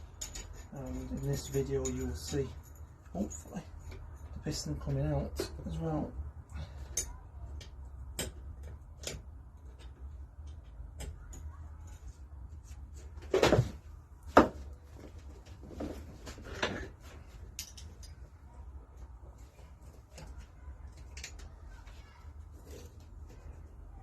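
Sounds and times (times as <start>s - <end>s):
tools and metal parts clicking: 0.0s - 5.8s, 6.6s - 12.2s, 16.4s - 18.4s, 19.8s - 21.6s.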